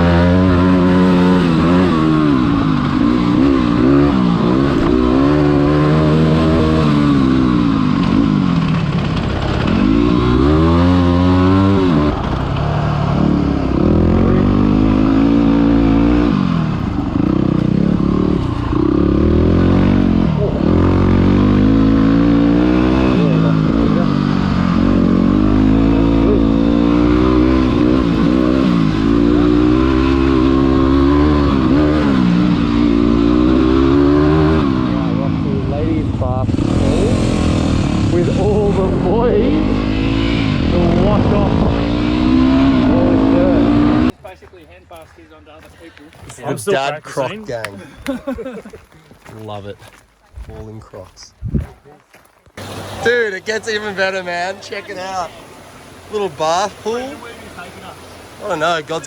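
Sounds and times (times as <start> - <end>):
motorcycle engine revving: 0.0 - 44.2.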